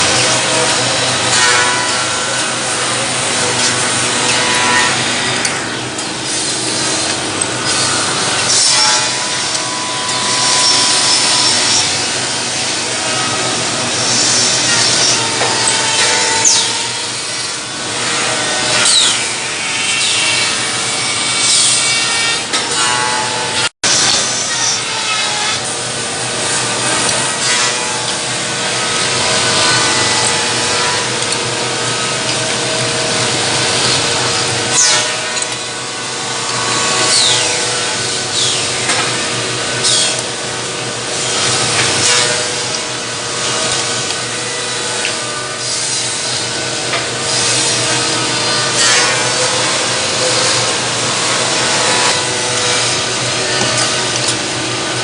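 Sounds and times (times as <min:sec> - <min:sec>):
drill boring into wood: 0:00.0 - 0:22.9.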